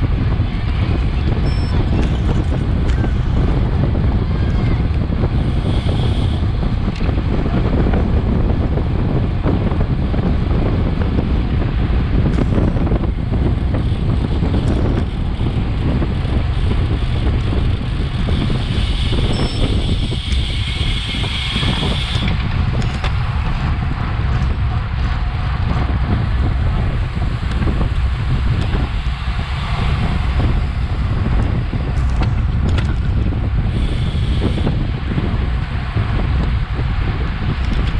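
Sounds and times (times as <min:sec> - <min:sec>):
low bike rumble: 0:00.0 - 0:37.9
wind buffeting microphone: 0:00.0 - 0:37.9.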